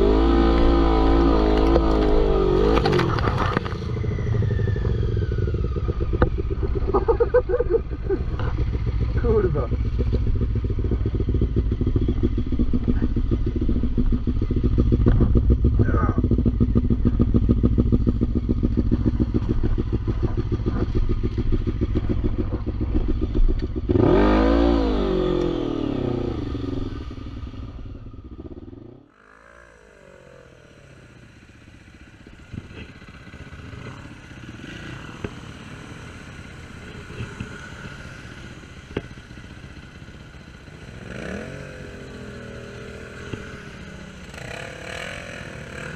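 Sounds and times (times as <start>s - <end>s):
atv engine revving: 0.0s - 45.9s.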